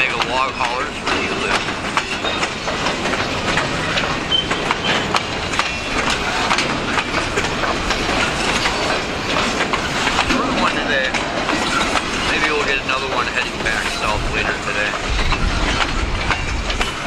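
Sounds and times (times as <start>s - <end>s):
clickety-clack over rail joints: 0.0s - 17.0s
train wheels rumbling on rails: 0.0s - 17.0s
short high squeak: 4.3s - 5.1s.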